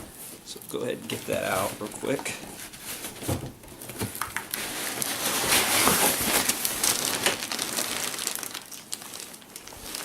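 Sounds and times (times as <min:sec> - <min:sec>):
cardboard rubbing and crinkling: 0:01.1 - 0:08.6.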